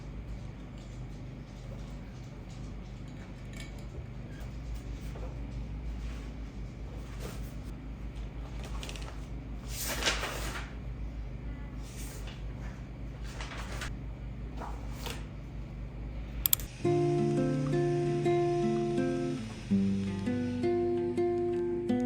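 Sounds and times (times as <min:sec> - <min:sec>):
steady low hum: 0:00.0 - 0:22.0
sharp clicks: 0:16.4 - 0:16.8.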